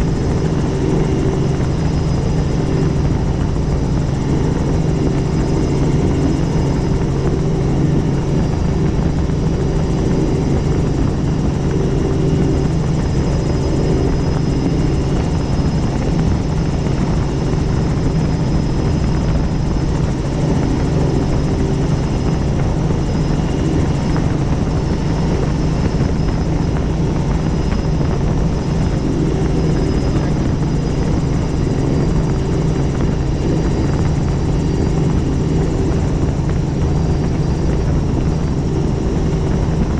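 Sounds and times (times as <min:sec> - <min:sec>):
helicopter rotor and engine drone: 0:00.0 - 0:39.9
thin high whine: 0:00.0 - 0:39.9.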